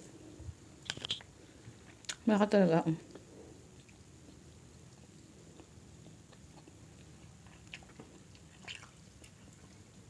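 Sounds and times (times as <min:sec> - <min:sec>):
people chewing: 0:03.1 - 0:10.0.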